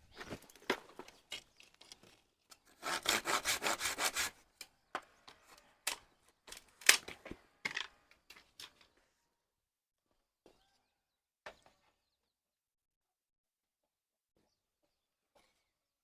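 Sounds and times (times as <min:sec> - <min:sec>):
hand saw cutting wood: 0:02.7 - 0:04.4.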